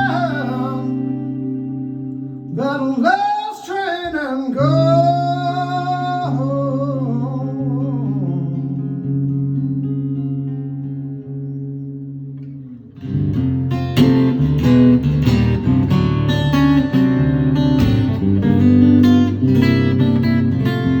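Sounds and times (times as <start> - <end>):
man singing blues: 0.0 - 10.2
guitar: 0.0 - 21.0.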